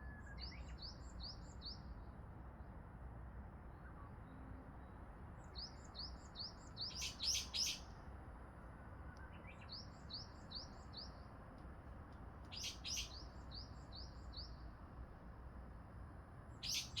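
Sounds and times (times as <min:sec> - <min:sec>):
songbird singing: 0:12.5 - 0:14.6, 0:16.6 - 0:17.0.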